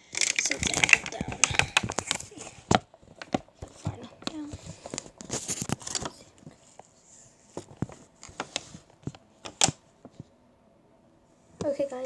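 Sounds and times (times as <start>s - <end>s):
handling taps and clicks: 0.2s - 6.5s.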